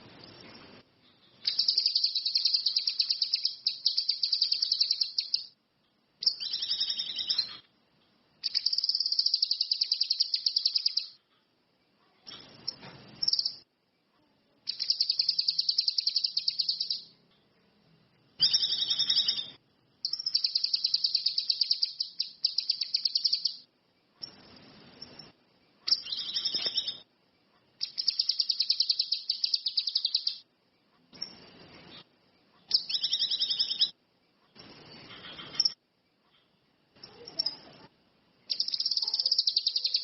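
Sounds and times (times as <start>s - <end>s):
songbird trilling: 1.4s - 5.5s, 6.2s - 7.7s, 8.4s - 11.2s, 14.7s - 17.1s, 18.4s - 23.7s, 25.9s - 27.0s, 27.8s - 30.4s, 32.7s - 33.9s, 38.5s - 40.0s.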